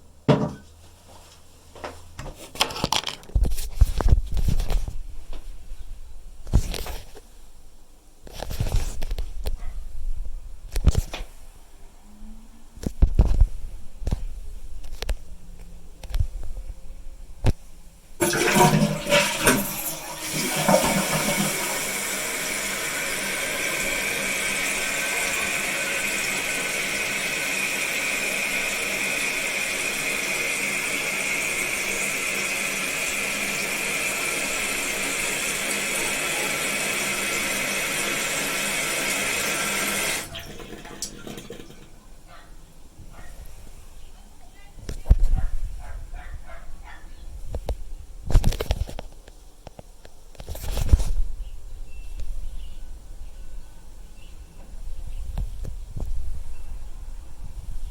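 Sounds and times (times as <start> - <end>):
tank refilling with hiss: 18.2 - 41.9
toilet flushing: 18.2 - 42.1.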